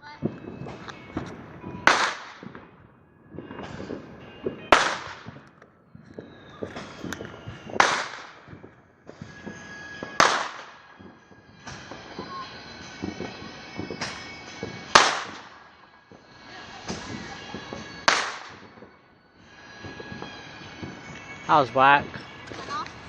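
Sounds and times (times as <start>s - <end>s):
firework bangs: 0.0s - 23.0s
firework crackling and fizzing: 0.0s - 23.0s
firework hissing: 6.1s - 23.0s.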